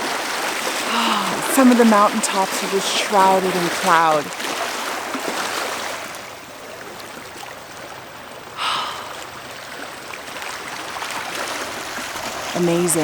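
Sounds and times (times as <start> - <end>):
rushing water: 0.0 - 13.0
sharp breath: 8.6 - 9.2.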